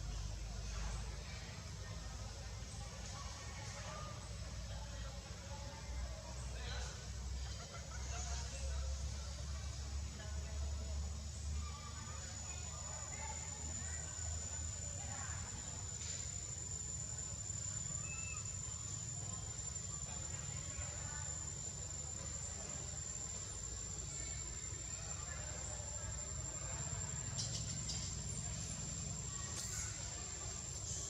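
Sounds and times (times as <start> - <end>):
faint voices: 0.0 - 31.0
insects calling high-pitched tone: 10.6 - 31.0.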